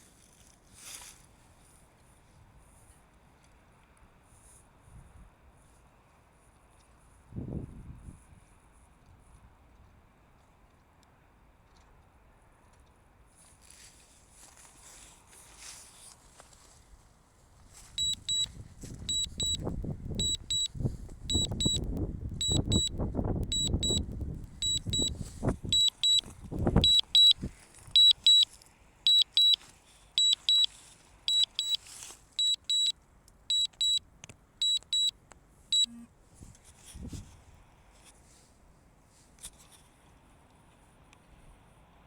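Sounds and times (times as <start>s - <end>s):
short high warning beeps: 18.0s - 21.8s, 22.4s - 26.2s, 26.8s - 27.4s, 28.0s - 28.5s, 29.1s - 29.6s, 30.2s - 30.7s, 31.3s - 31.8s, 32.4s - 32.9s, 33.5s - 34.0s, 34.6s - 35.1s, 35.7s - 36.1s.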